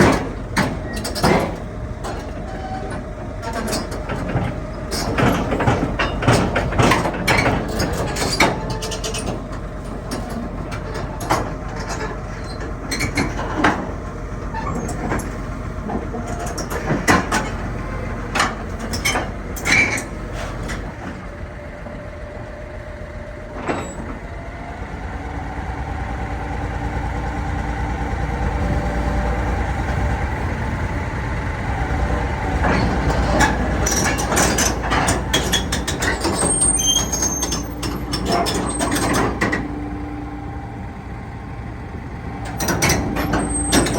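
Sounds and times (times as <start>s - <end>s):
metallic clanks and knocks: 0.0s - 14.0s, 32.6s - 39.7s
excavator engine running: 0.0s - 43.9s.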